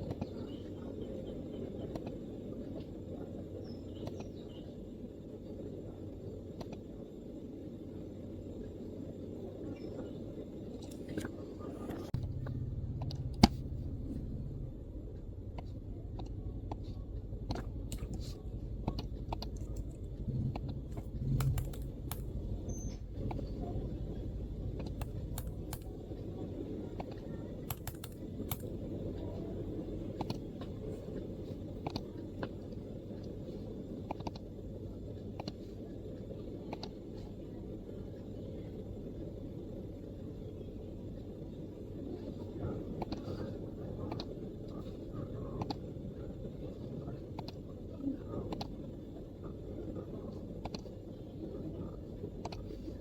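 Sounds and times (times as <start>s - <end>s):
low background rumble: 0.0s - 53.0s
keyboard typing: 15.6s - 28.9s.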